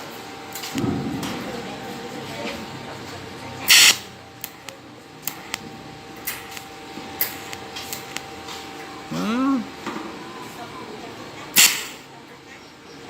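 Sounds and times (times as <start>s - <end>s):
welding clicks and crackles: 0.5s - 1.5s, 3.1s - 8.8s, 11.5s - 12.1s
welding hiss: 3.7s - 5.6s, 6.2s - 8.4s, 11.6s - 12.1s.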